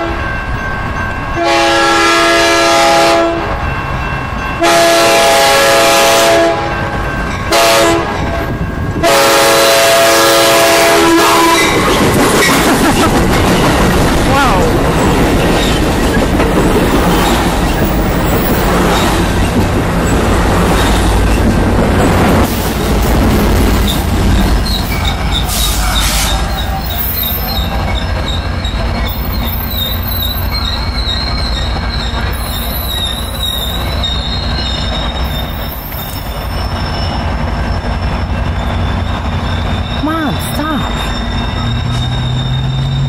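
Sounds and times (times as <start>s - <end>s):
diesel locomotive drone: 0.0s - 43.0s
train wheels rumbling and clacking: 0.0s - 43.0s
high wheel squeal: 17.0s - 22.8s, 23.6s - 43.0s.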